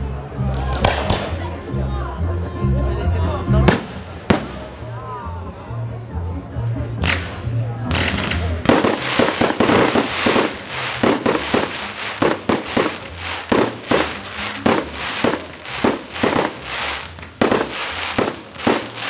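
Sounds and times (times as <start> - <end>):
fireworks bursting with bangs: 3.6 - 4.8, 7.0 - 19.0.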